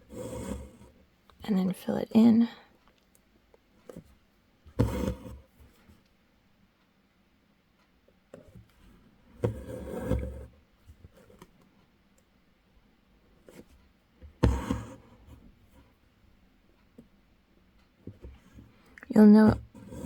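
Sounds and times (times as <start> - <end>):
thread rasping through fabric: 4.8 - 5.4, 14.4 - 15.0.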